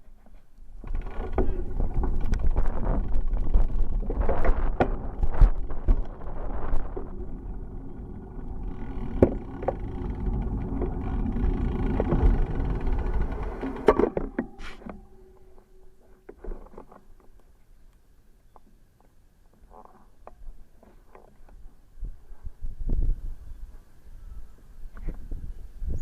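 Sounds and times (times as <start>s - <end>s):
bicycle rolling rumble: 0.0s - 17.4s
bicycle knocks and rattles: 0.8s - 17.1s.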